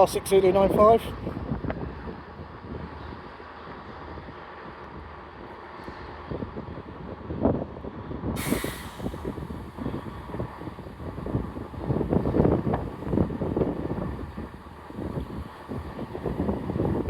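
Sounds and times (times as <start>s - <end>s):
diesel locomotive engine rumble: 0.0s - 17.0s
sharp hiss of air: 8.4s - 10.4s.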